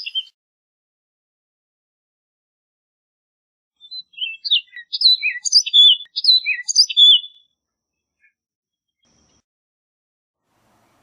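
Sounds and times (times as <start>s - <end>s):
bird singing whistled notes: 0.0s - 0.4s, 3.8s - 7.5s.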